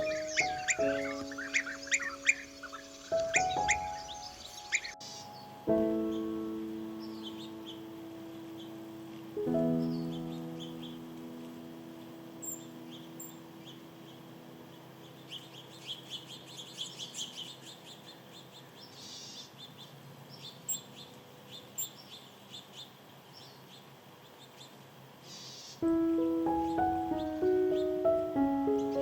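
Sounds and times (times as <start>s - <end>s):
sustained piano chord: 0.0s - 15.8s, 25.8s - 29.0s
small birds chirping: 0.0s - 29.0s.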